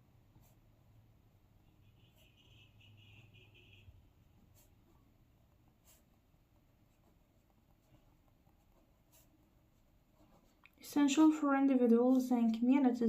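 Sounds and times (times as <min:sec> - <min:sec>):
pen scratching on paper: 0:00.3 - 0:00.8, 0:01.8 - 0:11.4.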